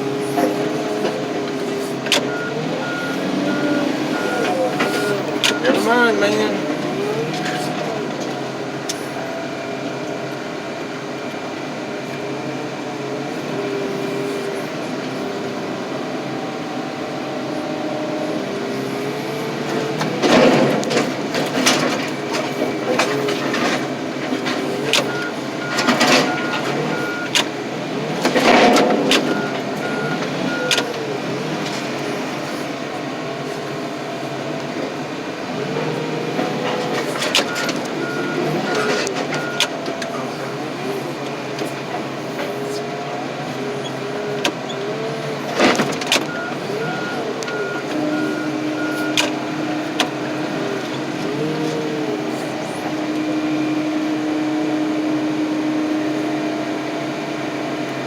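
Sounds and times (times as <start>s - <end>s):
reversing beeper: 0.0s - 8.2s, 13.3s - 57.7s
car crusher hydraulics whining: 0.0s - 58.0s.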